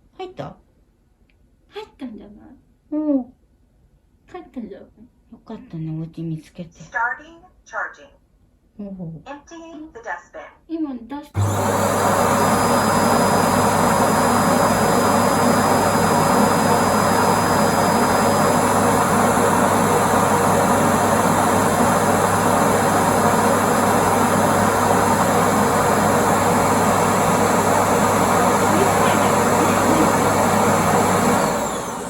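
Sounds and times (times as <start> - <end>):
suction motor rush of air: 11.4 - 32.0
thin high whine: 28.5 - 31.8.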